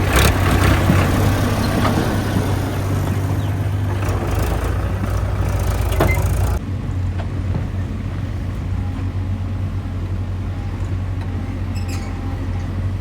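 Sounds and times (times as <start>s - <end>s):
sharp clanks: 0.0s - 6.6s
diesel engine humming: 0.0s - 13.0s.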